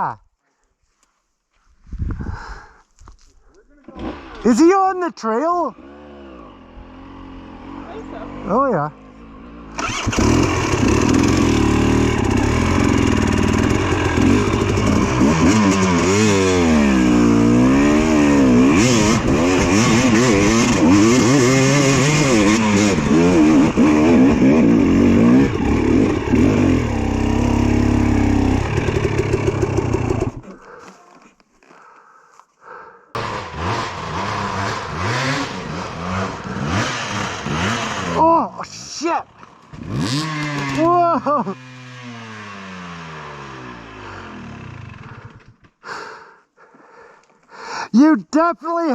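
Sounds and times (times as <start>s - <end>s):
dirt bike engine revving: 3.8s - 4.7s, 5.5s - 30.6s, 33.2s - 38.5s, 39.1s - 45.4s.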